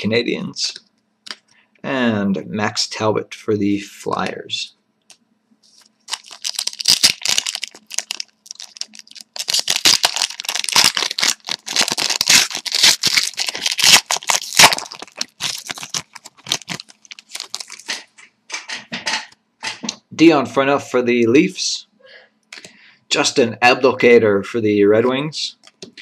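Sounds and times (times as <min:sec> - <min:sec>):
foil wrapper tearing and crinkling: 0:05.7 - 0:18.1.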